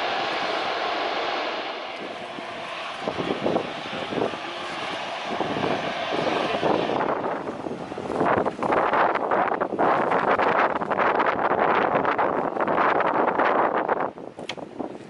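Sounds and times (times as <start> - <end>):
jet engines running: 0.0 - 9.7
wind buffeting microphone: 0.0 - 15.0.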